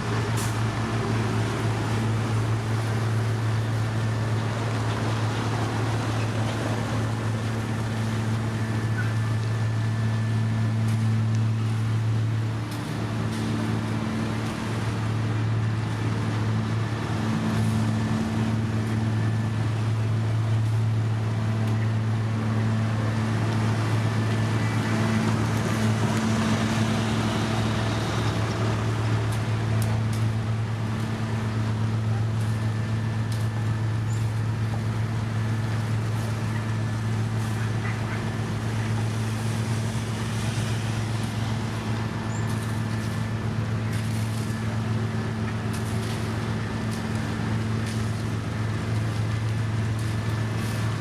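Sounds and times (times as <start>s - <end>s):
diesel engine running steadily: 0.0s - 51.0s.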